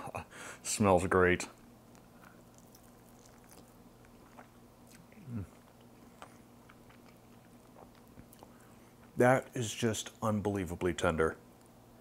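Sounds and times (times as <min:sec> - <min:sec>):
soft chewing squelches: 0:01.5 - 0:09.2
man humming low: 0:05.2 - 0:05.5.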